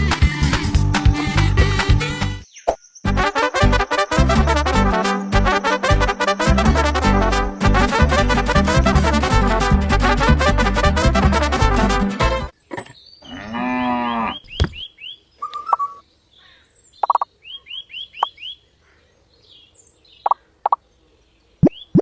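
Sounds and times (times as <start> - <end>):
low drawn-out animal call: 13.2 - 14.4.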